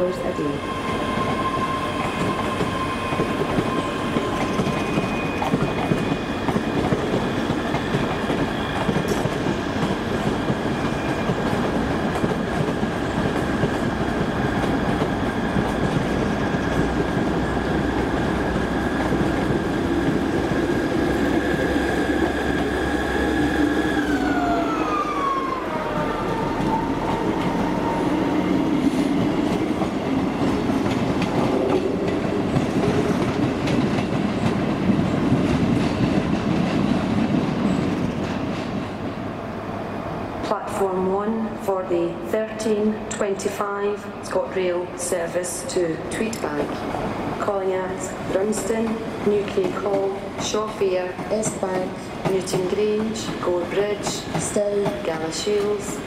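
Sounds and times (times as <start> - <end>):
electric train high whine: 0.2 - 33.2.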